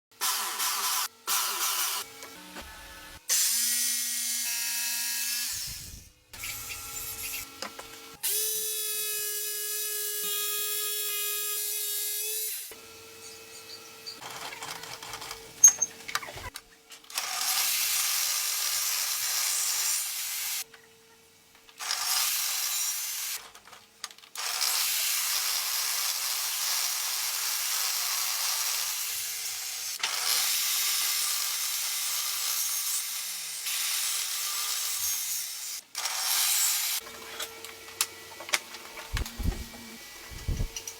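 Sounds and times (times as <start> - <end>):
electric jigsaw sawing wood: 0.2 - 8.6, 24.4 - 37.1.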